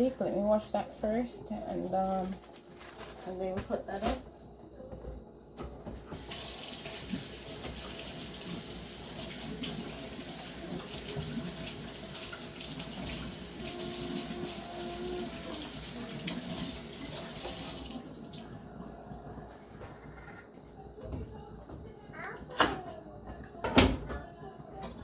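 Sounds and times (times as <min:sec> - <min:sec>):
tap water running into sink: 0:06.1 - 0:18.6.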